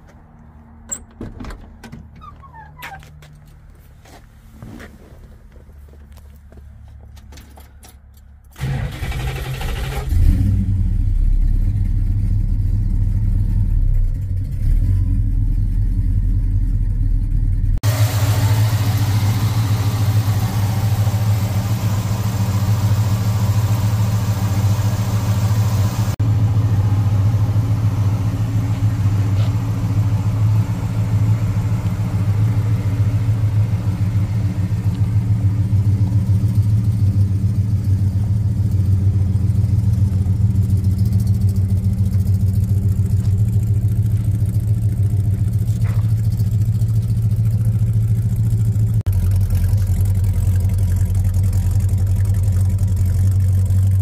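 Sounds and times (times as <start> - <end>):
engine starter cranking: 8.5 - 10.4
car engine idling: 8.5 - 54.0
engine revving: 8.6 - 15.9, 17.8 - 43.3.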